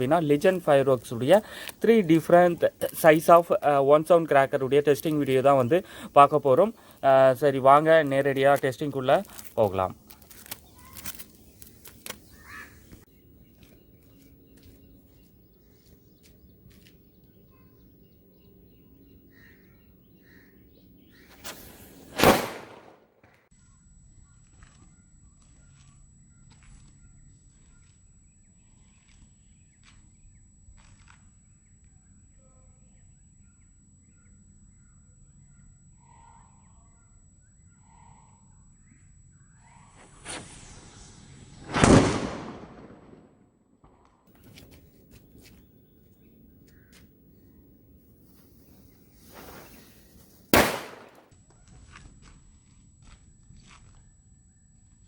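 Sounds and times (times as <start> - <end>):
faint bird chirps: 9.0 - 22.1, 23.6 - 40.0, 48.2 - 50.4
firecracker bang: 21.3 - 23.1, 40.2 - 43.4, 48.3 - 51.2.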